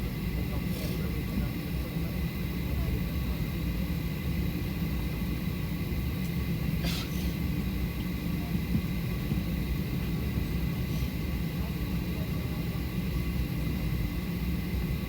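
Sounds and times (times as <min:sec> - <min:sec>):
aircraft cabin rumble: 0:00.0 - 0:15.0
thin steady whine: 0:00.0 - 0:15.0.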